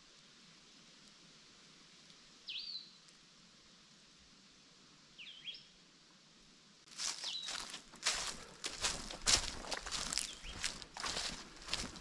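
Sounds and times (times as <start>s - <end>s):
faint forest background hiss: 0.0s - 12.0s
footsteps on trail: 6.9s - 12.0s.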